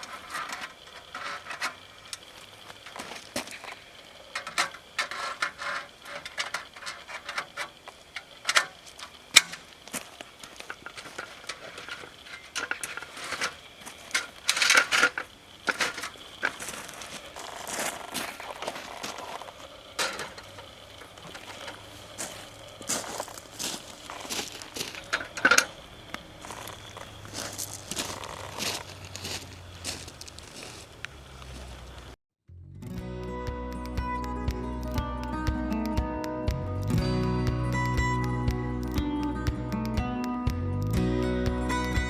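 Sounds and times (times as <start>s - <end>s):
irregular clicks and knocks: 0.0s - 17.0s
rustling and clattering: 0.0s - 25.8s.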